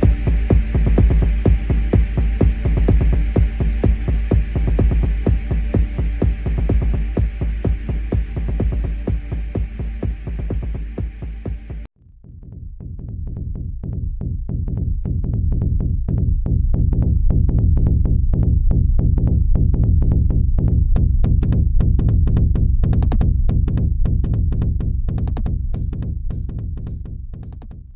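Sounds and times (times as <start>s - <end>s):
electronic dance music: 0.0s - 11.9s.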